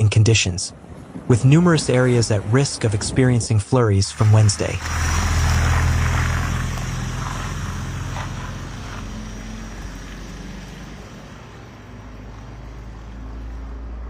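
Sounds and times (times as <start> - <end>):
road hiss: 4.0 - 14.0
vehicle engine rumble: 4.0 - 14.0.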